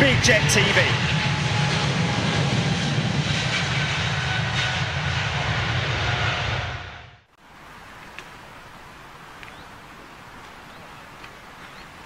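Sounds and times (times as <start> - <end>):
jet airliner engine rushing: 0.0 - 7.3.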